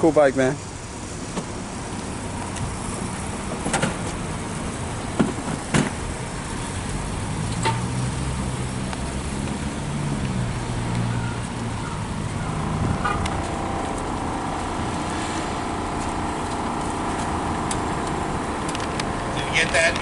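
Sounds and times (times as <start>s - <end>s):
vehicle engine humming: 0.0s - 20.0s
high steady whine: 10.1s - 20.0s.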